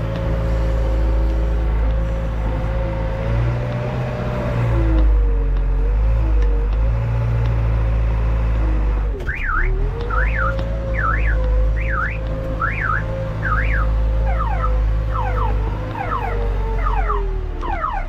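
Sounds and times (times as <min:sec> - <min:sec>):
backhoe engine running: 0:00.0 - 0:18.0
electronic warbling alarm: 0:09.3 - 0:18.0.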